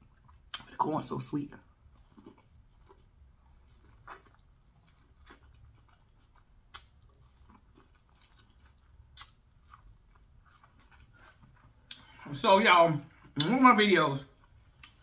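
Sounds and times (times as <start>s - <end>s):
chewing corn on the cob: 1.6s - 12.1s
soft mouth clicks: 6.7s - 7.0s.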